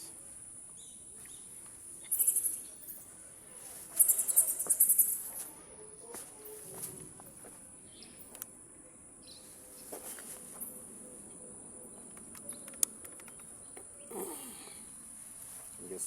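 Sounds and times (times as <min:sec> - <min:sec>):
sharp clicks: 0:12.0 - 0:13.9.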